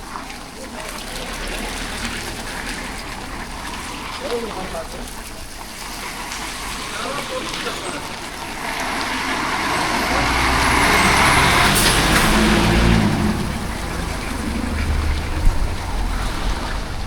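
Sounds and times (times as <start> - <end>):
vehicle passing by: 0.1 - 17.0
low wind rumble: 8.1 - 17.0.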